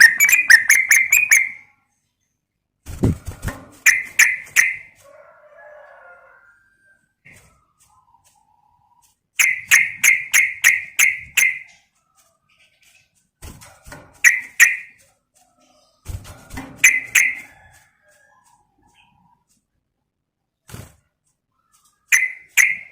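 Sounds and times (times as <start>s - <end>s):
bird calling sharp notes: 0.0s - 1.7s, 3.8s - 4.9s, 9.4s - 11.7s, 14.2s - 15.0s, 16.8s - 17.4s, 22.1s - 22.9s.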